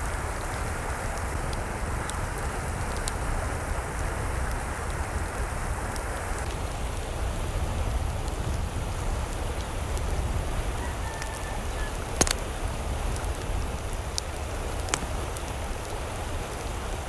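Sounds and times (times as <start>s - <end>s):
steady rain falling: 0.0s - 17.0s
sharp drip-like clicks: 0.4s - 3.4s, 12.1s - 12.5s, 13.1s - 16.8s.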